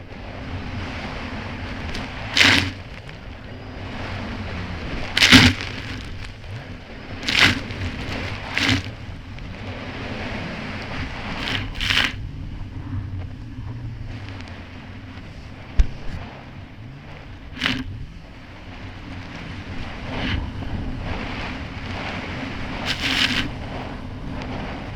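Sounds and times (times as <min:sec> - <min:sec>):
jet ski engine running: 0:00.0 - 0:24.9
water splashes: 0:00.9 - 0:12.2, 0:17.5 - 0:17.9, 0:18.6 - 0:23.6.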